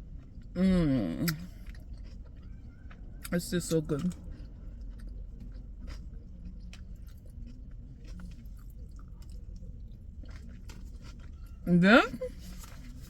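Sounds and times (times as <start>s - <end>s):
low steady hum: 0.0s - 13.0s
person chewing food: 1.3s - 3.3s, 4.0s - 11.6s.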